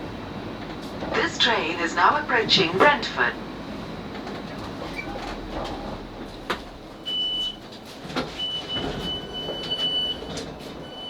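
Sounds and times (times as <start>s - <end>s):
train rumbling inside carriage: 0.0s - 11.0s.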